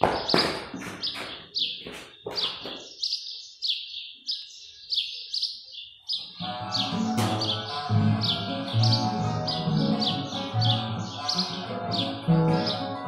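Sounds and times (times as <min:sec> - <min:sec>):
small bird chirping: 0:01.0 - 0:07.6.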